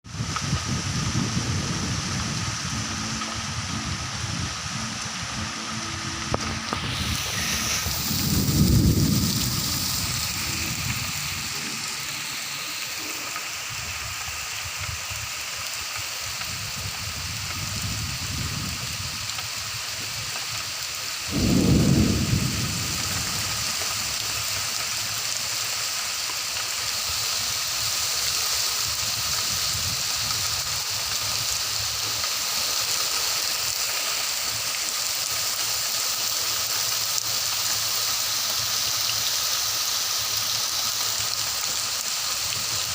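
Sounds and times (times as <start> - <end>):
steady rain: 0.0 - 42.9
low thunder rumbles: 0.8 - 13.4, 21.2 - 25.9.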